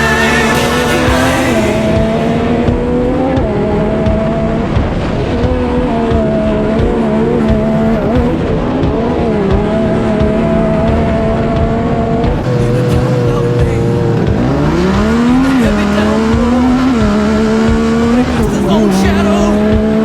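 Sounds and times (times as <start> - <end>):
racing engine at high revs: 0.0 - 20.0.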